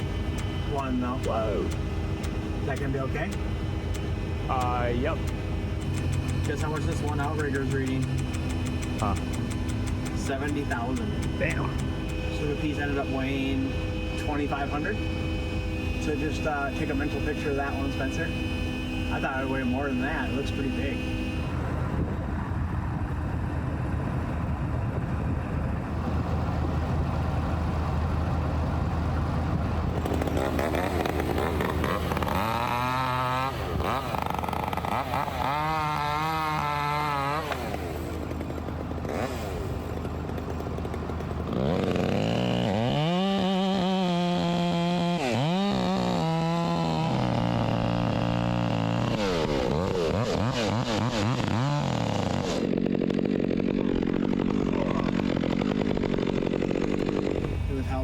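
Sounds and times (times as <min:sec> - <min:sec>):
chainsaw revving and cutting: 0:00.0 - 0:21.5, 0:29.9 - 0:58.0
crane engine humming: 0:00.0 - 0:58.0.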